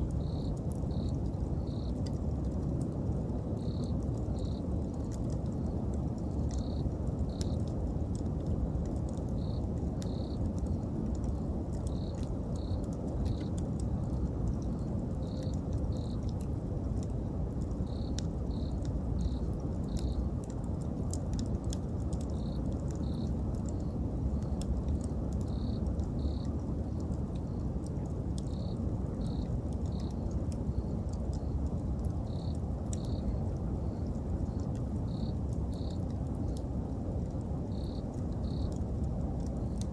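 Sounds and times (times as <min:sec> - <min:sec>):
insect chirping: 0:00.0 - 0:02.0, 0:03.6 - 0:04.6, 0:06.5 - 0:07.7, 0:09.3 - 0:10.6, 0:11.4 - 0:14.0, 0:14.7 - 0:16.6, 0:17.7 - 0:20.3, 0:22.1 - 0:24.6, 0:25.4 - 0:27.6, 0:28.4 - 0:36.7, 0:37.6 - 0:38.9
wood fire crackling: 0:00.0 - 0:39.9.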